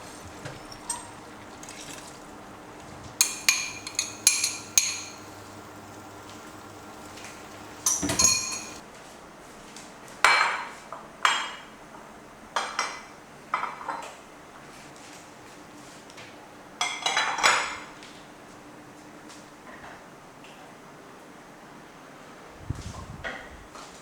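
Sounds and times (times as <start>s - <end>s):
dishes and utensils clattering: 0.0s - 2.6s, 3.2s - 8.8s.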